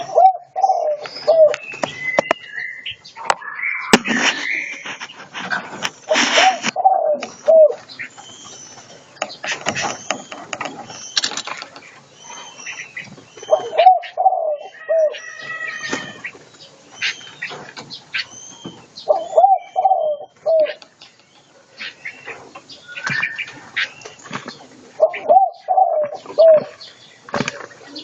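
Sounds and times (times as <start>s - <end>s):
dove cooing: 0.0s - 1.6s, 6.1s - 8.0s, 12.2s - 17.6s, 18.2s - 20.9s, 21.6s - 28.0s
songbirds chirping and whistling: 0.0s - 28.0s.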